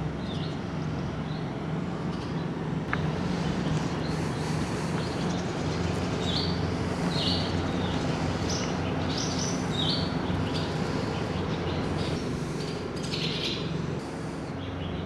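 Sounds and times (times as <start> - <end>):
low mechanical hum: 0.0 - 15.0
small bird chirping: 3.6 - 13.8.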